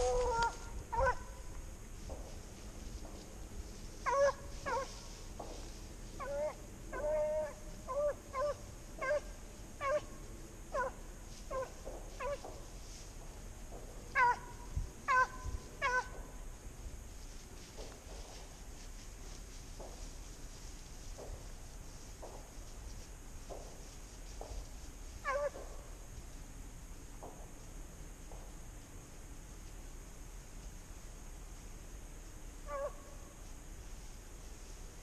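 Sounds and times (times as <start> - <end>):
dog baying with high yelps: 0.0 - 1.4, 4.0 - 5.0, 6.2 - 12.4, 14.2 - 16.1.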